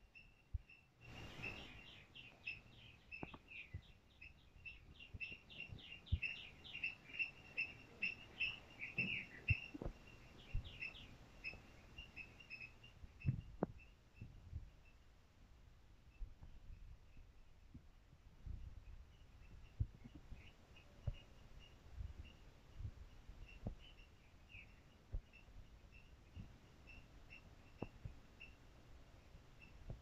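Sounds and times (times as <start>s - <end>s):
birds chirping: 0.0s - 15.1s, 18.4s - 30.0s
soft low thumps: 8.2s - 11.8s, 12.9s - 14.9s, 16.1s - 24.0s.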